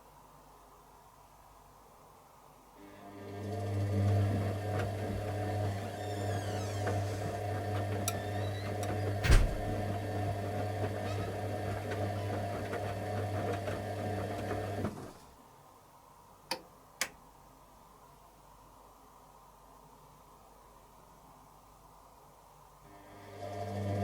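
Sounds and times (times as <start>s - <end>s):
washing machine motor hum: 2.8s - 15.4s, 22.9s - 24.0s
washing machine drum thump: 9.2s - 10.1s.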